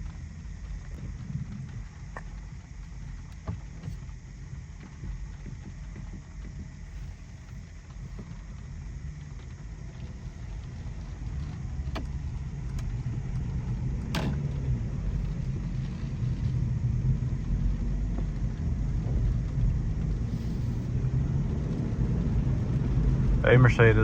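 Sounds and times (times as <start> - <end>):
faint ticks: 0.0 - 21.9
road and tyre rumble: 0.0 - 24.0.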